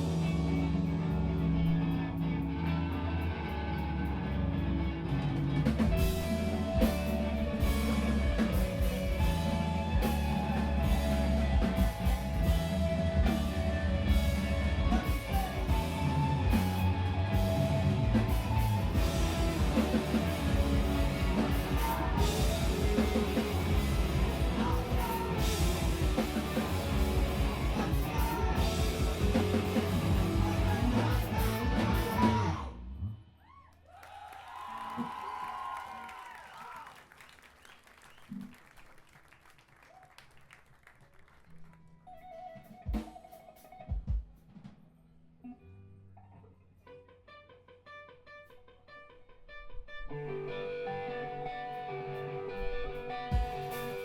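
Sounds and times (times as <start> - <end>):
live screamo band playing: 0.0 - 32.8, 50.1 - 54.0.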